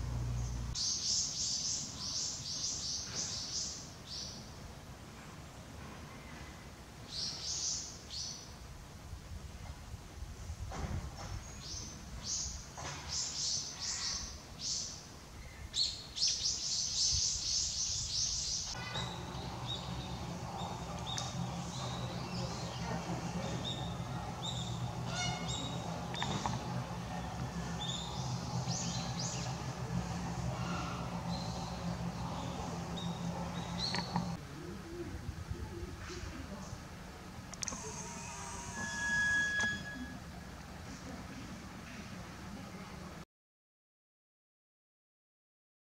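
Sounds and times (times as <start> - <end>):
steady low hum: 0.0 - 7.2, 13.6 - 43.2
small birds chirping: 0.4 - 4.6, 11.4 - 34.4.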